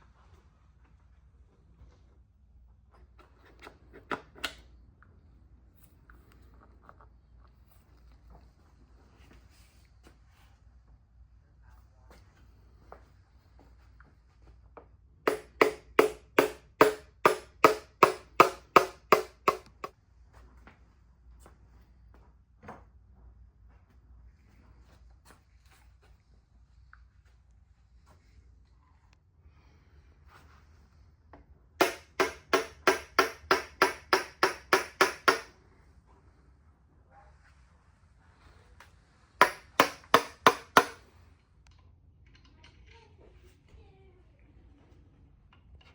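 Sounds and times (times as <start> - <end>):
sharp knocks: 15.3 - 19.9, 31.8 - 35.5, 39.4 - 41.0.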